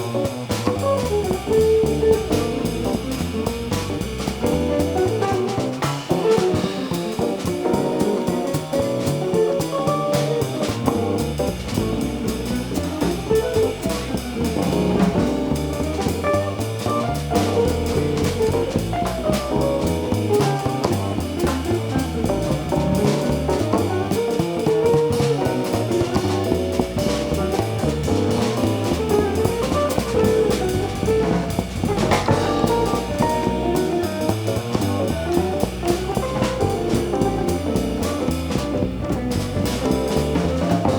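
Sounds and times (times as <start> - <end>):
drum kit: 0.0 - 40.9
jazz guitar: 0.0 - 40.9.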